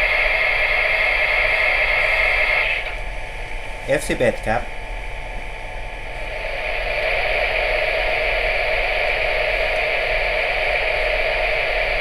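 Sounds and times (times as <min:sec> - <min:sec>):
steam hissing effect from speaker: 0:00.0 - 0:03.0, 0:06.2 - 0:12.0.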